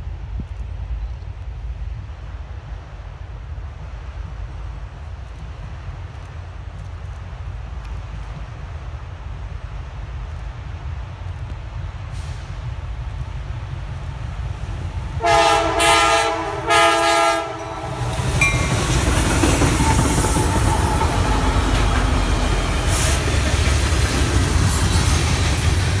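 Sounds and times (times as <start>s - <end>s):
diesel locomotive rumble: 0.0s - 26.0s
train wheels clattering on rails: 0.0s - 26.0s
locomotive air horn blasts: 15.2s - 18.7s.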